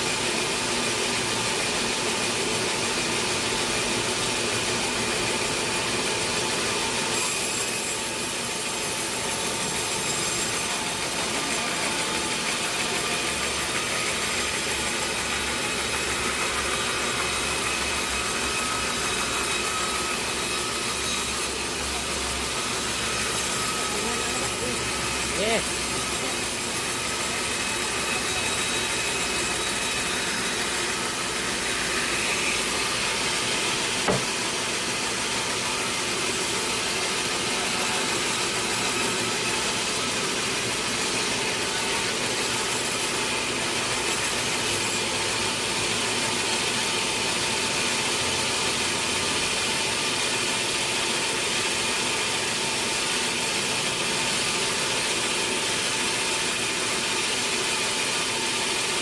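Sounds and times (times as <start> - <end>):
sawmill machinery running: 0.0 - 59.0
sharp knock: 34.0 - 34.4.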